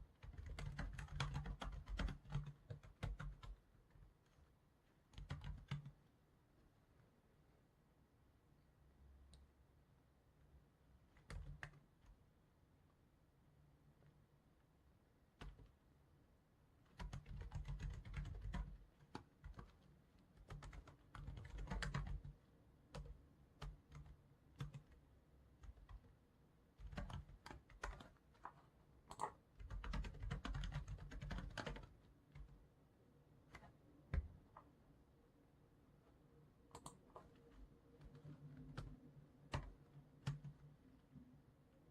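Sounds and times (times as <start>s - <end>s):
typing on computer keyboard: 0.1s - 3.7s, 5.1s - 6.0s, 11.1s - 11.8s, 15.4s - 15.7s, 16.9s - 25.0s, 25.6s - 26.1s, 26.8s - 32.6s, 36.7s - 37.4s, 38.0s - 40.7s.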